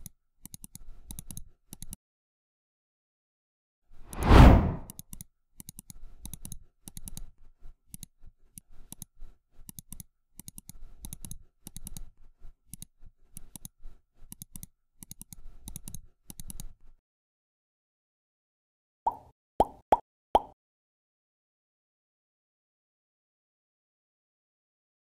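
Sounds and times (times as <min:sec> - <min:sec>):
loud whoosh: 0:04.1 - 0:04.9
keyboard typing clicks: 0:14.3 - 0:16.8.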